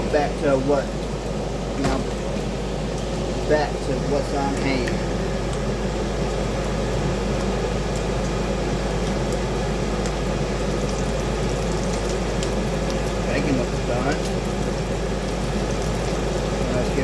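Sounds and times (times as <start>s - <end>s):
bacon sizzling in a frying pan: 0.0s - 17.0s.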